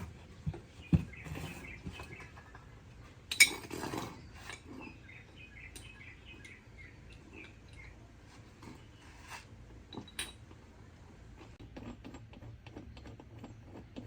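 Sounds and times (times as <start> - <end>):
metallic clinks and knocks: 3.3 - 4.8, 9.9 - 10.6.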